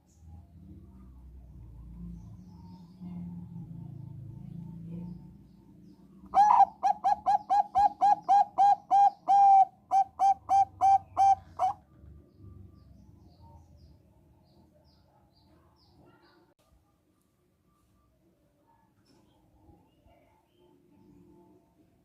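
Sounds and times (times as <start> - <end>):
dove cooing: 6.3 - 11.8.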